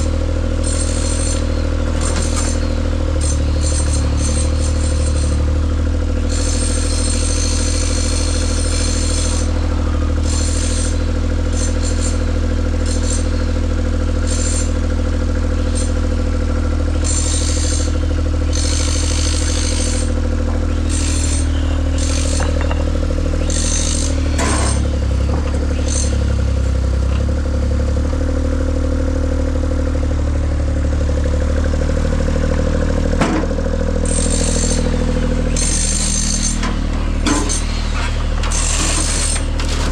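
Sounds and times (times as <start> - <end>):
large engine running: 0.0 - 39.9
sharp clattering knocks: 22.2 - 23.0.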